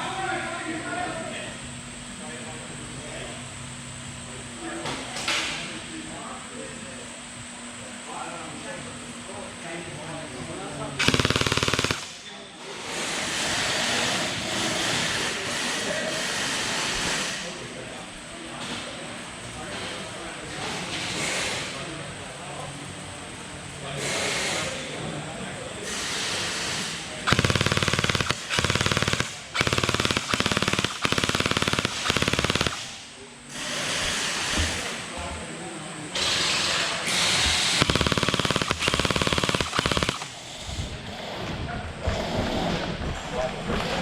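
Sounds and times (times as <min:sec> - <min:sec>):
gel blaster rapid clicks: 0:11.0 - 0:12.2, 0:27.3 - 0:33.0, 0:37.4 - 0:40.4.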